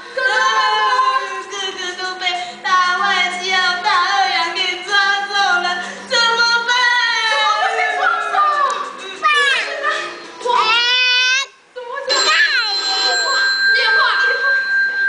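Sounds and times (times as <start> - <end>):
women singing in high voices: 0.0 - 10.7.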